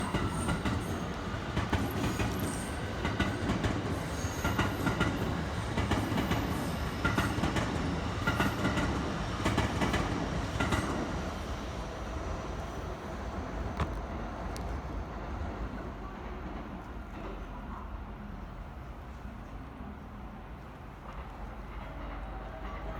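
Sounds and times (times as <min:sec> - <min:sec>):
train wheels clacking: 0:00.0 - 0:11.3
heavy train rumble: 0:00.0 - 0:22.9.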